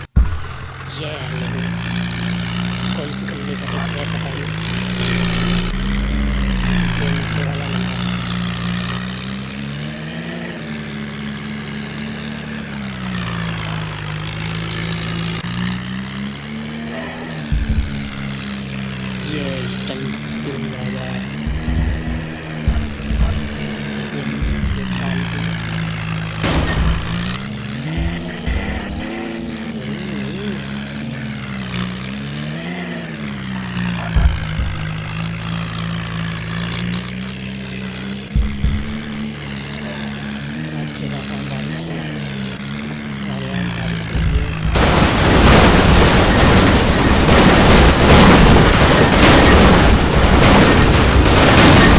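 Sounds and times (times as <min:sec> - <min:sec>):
heavy thump: 0:00.0 - 0:00.8, 0:17.5 - 0:18.4, 0:21.4 - 0:24.8, 0:34.1 - 0:35.1, 0:38.4 - 0:39.2
tractor engine running: 0:00.0 - 0:51.9.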